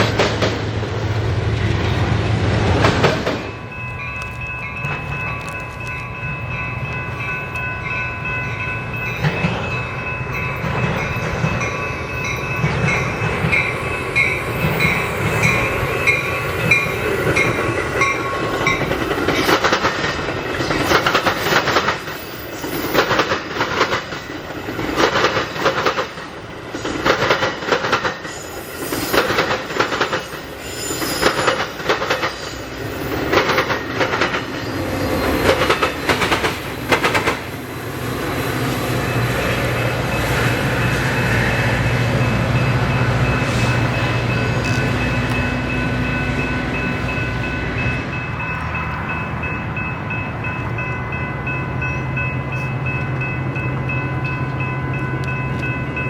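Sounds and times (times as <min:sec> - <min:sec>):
wheels clicking over rail joints: 0:00.0 - 0:37.7
train rumble: 0:00.0 - 0:56.0
high ringing tones: 0:03.4 - 0:19.0.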